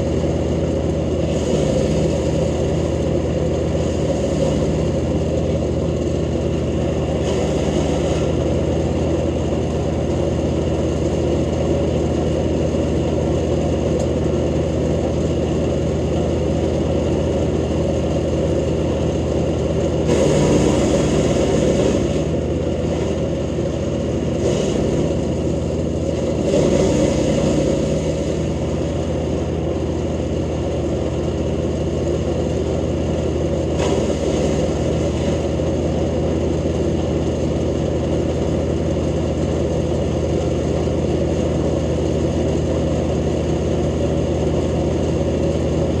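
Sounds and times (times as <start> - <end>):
wood chipper running: 0.0 - 46.0.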